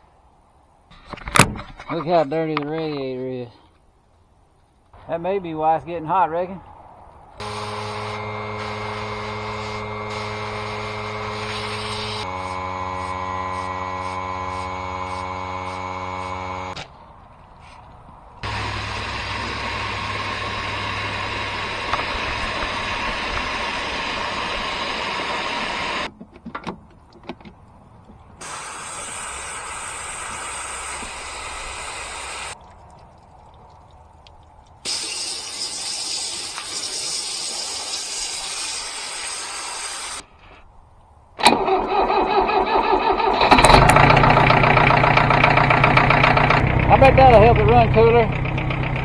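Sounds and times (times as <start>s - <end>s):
steady hissing: 6.7s - 16.3s, 17.6s - 26.1s, 28.4s - 32.6s, 34.1s - 40.8s
tractor engine running: 7.1s - 17.0s, 18.4s - 26.2s, 27.7s - 40.3s, 41.4s - 49.0s.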